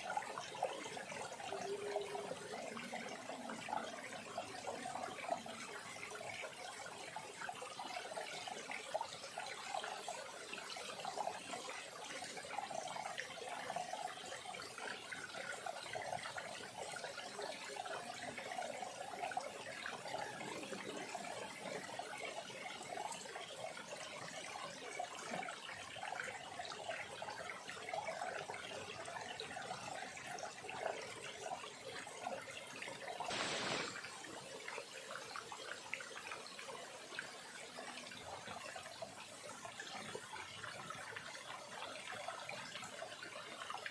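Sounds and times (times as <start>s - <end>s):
stream trickling over stones: 0.0s - 43.9s.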